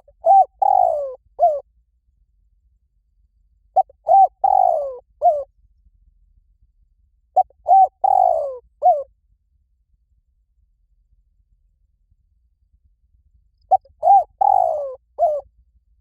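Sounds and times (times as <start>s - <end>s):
dove cooing: 0.0s - 1.6s, 3.8s - 5.5s, 7.4s - 9.1s, 13.7s - 15.4s.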